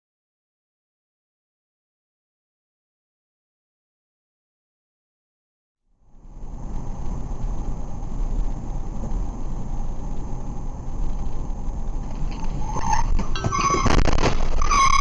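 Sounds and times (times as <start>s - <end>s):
car engine and road noise: 5.9s - 15.0s
brief squeal: 12.3s - 15.0s.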